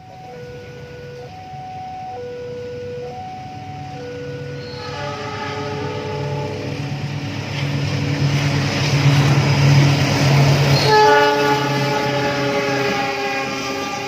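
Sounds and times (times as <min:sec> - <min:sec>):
train passing: 0:00.0 - 0:14.0
locomotive horn blast: 0:03.9 - 0:07.7, 0:10.6 - 0:14.0.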